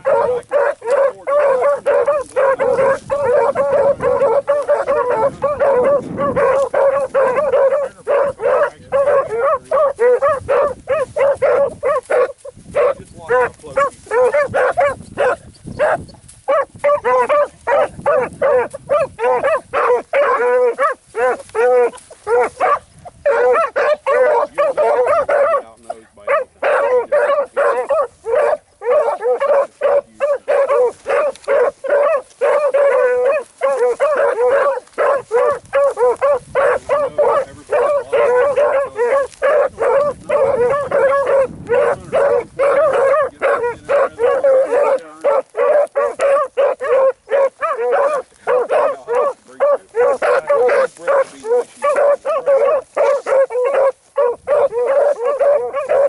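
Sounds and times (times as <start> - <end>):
hounds baying: 0.0 - 56.0.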